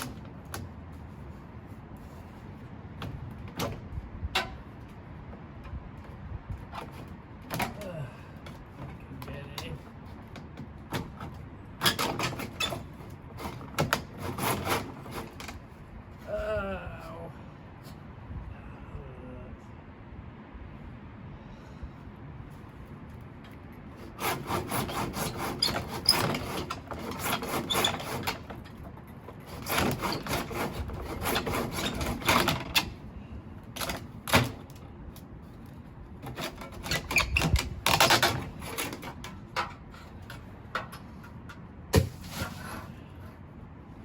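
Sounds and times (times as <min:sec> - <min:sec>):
hand saw strokes: 0:10.9 - 0:15.7, 0:23.9 - 0:33.0, 0:36.2 - 0:40.2.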